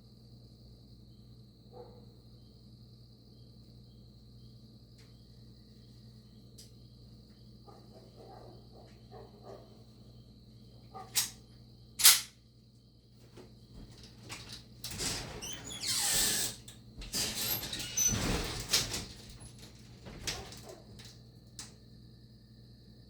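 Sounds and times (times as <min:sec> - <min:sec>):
crickets chirping: 0:00.0 - 0:23.0
sharp click: 0:12.0 - 0:12.3.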